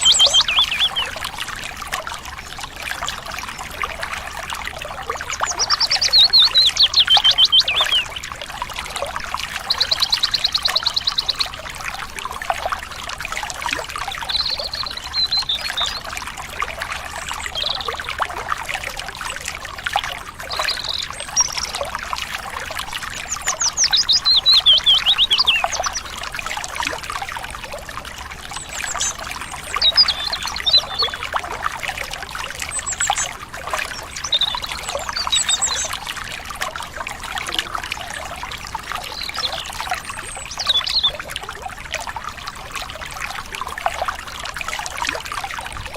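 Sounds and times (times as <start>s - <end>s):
small birds chirping: 0.0s - 1.2s, 5.1s - 8.3s, 9.5s - 11.6s, 13.8s - 16.1s, 17.1s - 18.2s, 20.4s - 21.9s, 22.8s - 26.2s, 28.5s - 31.4s, 32.4s - 36.1s, 37.4s - 41.2s
stream trickling and splashing: 0.0s - 45.9s.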